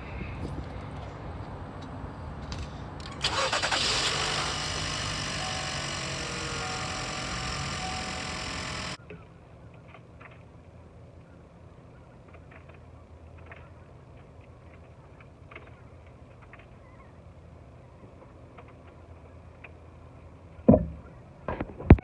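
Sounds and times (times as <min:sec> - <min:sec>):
engine cranking and running: 0:03.0 - 0:09.0.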